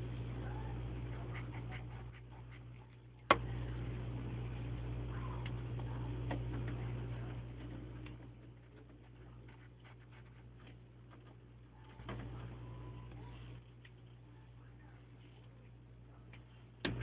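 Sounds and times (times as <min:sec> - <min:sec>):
low electrical hum: 0:00.0 - 0:17.0
pencil scratching on paper: 0:01.1 - 0:03.0, 0:08.3 - 0:11.4.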